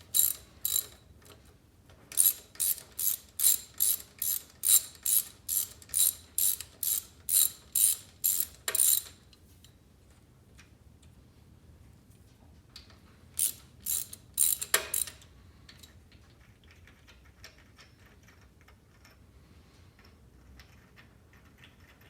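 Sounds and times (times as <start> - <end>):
metallic clicks and scrapes: 0.0 - 1.4, 2.1 - 9.7, 13.4 - 19.2
tap wrench ratcheting clicks: 0.1 - 1.0, 2.1 - 9.2, 13.4 - 15.2.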